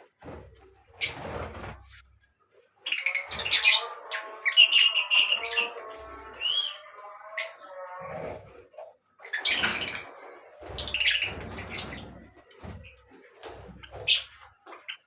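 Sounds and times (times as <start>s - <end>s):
birds chirping: 2.8s - 12.3s.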